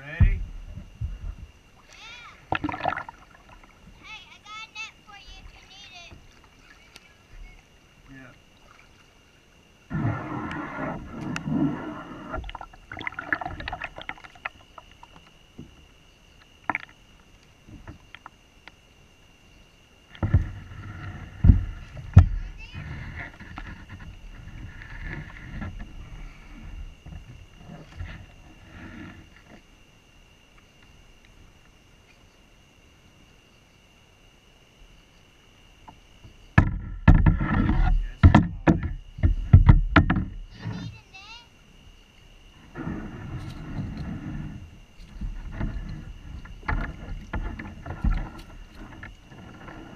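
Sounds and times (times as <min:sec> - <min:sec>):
knocks and bumps on a kayak: 0:00.0 - 0:01.6, 0:09.9 - 0:15.9, 0:17.6 - 0:18.4, 0:20.1 - 0:29.7, 0:35.8 - 0:41.0, 0:42.6 - 0:49.9
night insects droning: 0:00.0 - 0:49.9
water splashing: 0:01.7 - 0:04.1, 0:04.9 - 0:15.3
gear clicking and knocking in kayak: 0:36.6 - 0:40.4, 0:45.0 - 0:49.9.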